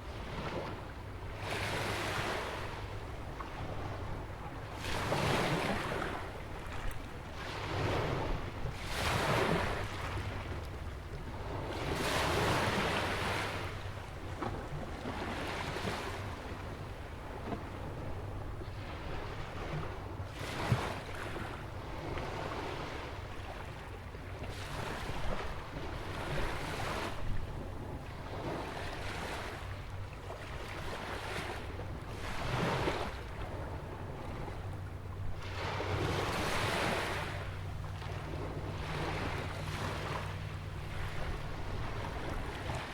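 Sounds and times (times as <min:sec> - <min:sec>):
wind rumble on microphone: 0:00.0 - 0:42.9
ocean waves breaking: 0:28.2 - 0:42.9.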